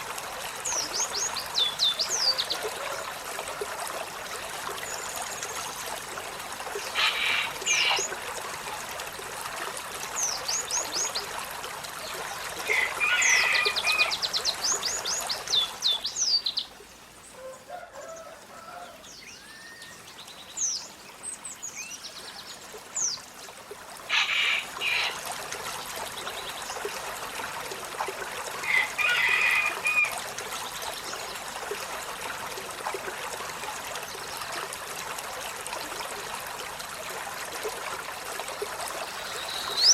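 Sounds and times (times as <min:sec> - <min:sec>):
trickling water hiss: 0:00.0 - 0:39.9.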